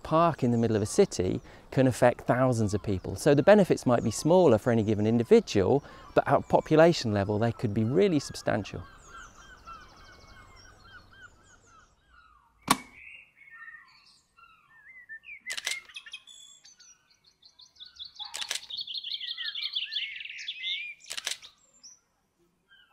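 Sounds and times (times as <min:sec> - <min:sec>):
songbirds chirping and singing: 0:00.0 - 0:22.9
sharp clicks: 0:12.6 - 0:13.0, 0:15.5 - 0:16.0, 0:18.3 - 0:18.8, 0:21.0 - 0:21.5.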